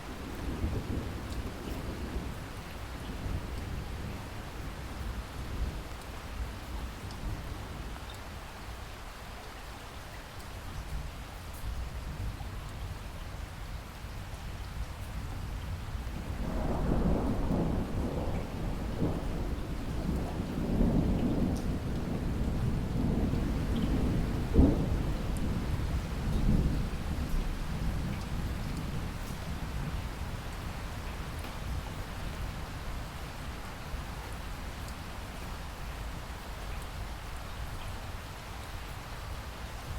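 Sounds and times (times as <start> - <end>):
heavy rain: 0.0 - 39.9
thunder rumbling: 16.1 - 30.3.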